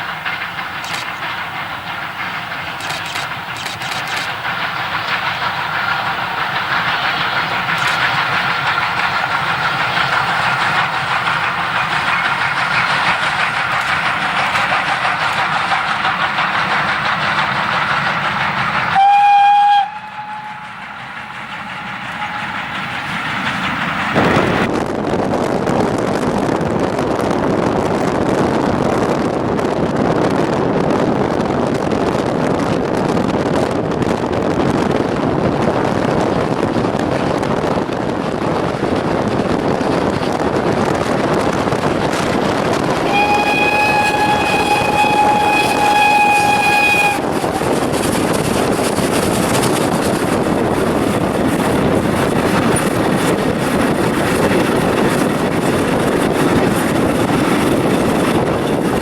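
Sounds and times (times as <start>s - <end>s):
moving train rushing: 0.0s - 59.0s
steam whistle: 19.0s - 20.8s, 43.0s - 47.8s.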